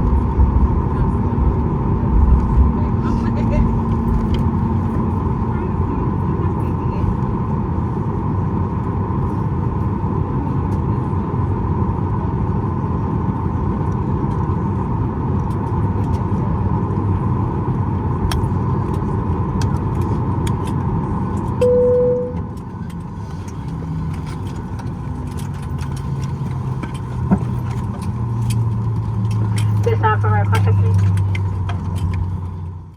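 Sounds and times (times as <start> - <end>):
airplane cabin noise: 0.0 - 32.9
cabin chime: 21.6 - 22.4.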